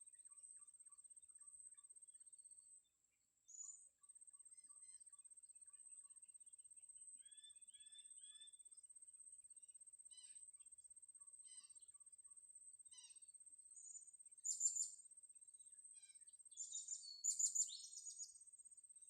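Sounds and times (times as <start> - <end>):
small bird chirping: 2.5 - 6.2, 7.2 - 8.8, 10.1 - 18.8.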